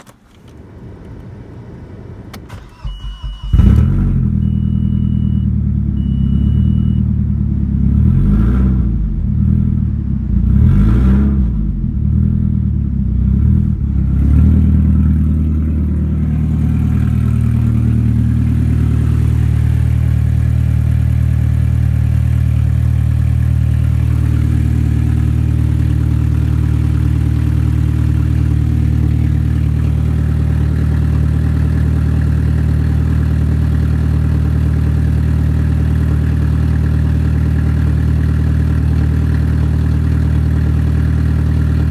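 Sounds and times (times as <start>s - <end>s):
car engine starting and revving: 0.0s - 41.9s
short electronic beeps: 2.6s - 3.7s, 4.4s - 7.1s.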